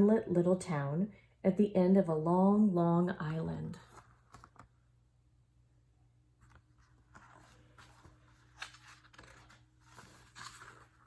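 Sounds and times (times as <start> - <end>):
low steady hum: 0.0 - 11.0
paper rustling: 3.8 - 4.8, 6.4 - 11.0.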